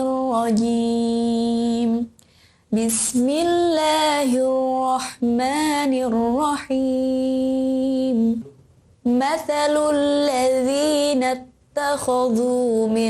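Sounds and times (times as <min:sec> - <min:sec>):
short breaths: 0:02.2 - 0:02.7.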